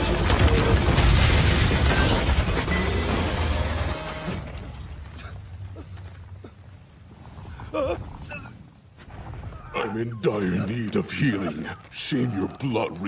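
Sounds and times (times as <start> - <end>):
crashing rumbling destruction: 0.0 - 5.6.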